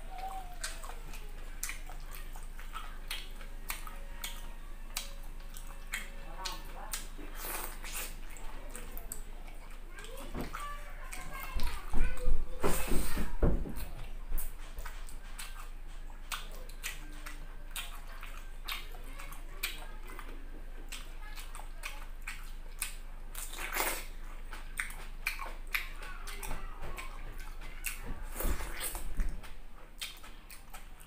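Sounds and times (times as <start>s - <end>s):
wet chewing and lip smacking: 0.0s - 12.2s, 13.8s - 31.0s
biting into tomato: 0.3s - 9.2s, 20.9s - 31.0s.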